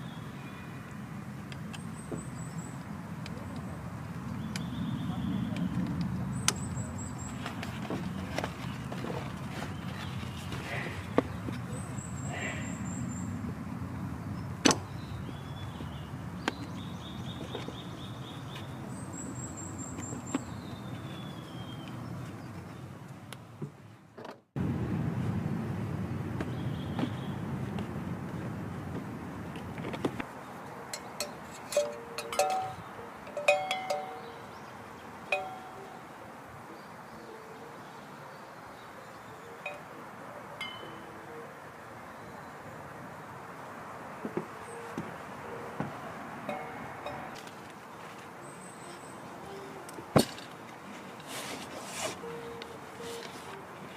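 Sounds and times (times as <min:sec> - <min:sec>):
birds singing trilled phrases: 0:01.8 - 0:09.0, 0:09.6 - 0:13.4, 0:30.9 - 0:36.1
light metallic clinks: 0:30.9 - 0:34.4, 0:35.3 - 0:35.8, 0:40.6 - 0:41.1, 0:46.5 - 0:47.6.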